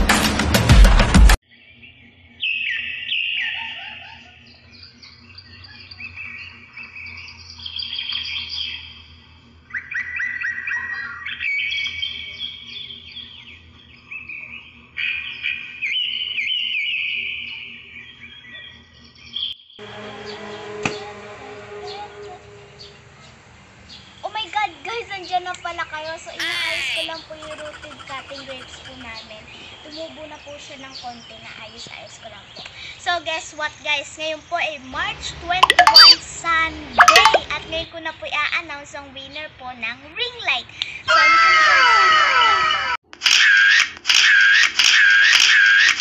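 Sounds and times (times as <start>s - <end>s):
small birds chirping: 23.8s - 35.0s.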